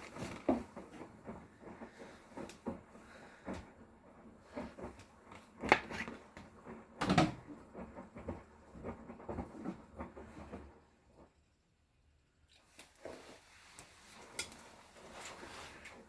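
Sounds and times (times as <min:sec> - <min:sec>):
load tumbling in washing machine: 0:00.0 - 0:11.5.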